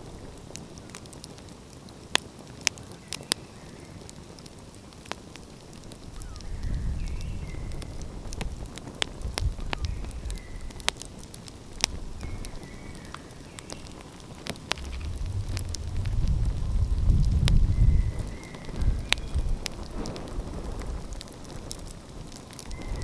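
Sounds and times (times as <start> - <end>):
wood fire crackling: 4.0 - 23.0
low rumble: 14.5 - 19.0.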